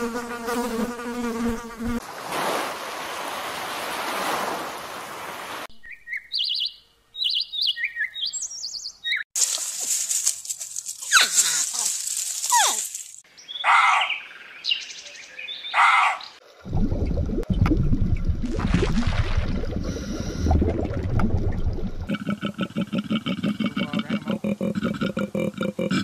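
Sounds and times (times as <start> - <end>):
high falling bird chirps: 5.7 - 9.4, 11.0 - 16.4
low underwater rumble: 16.6 - 22.1
koala grunting bellow: 22.1 - 26.0.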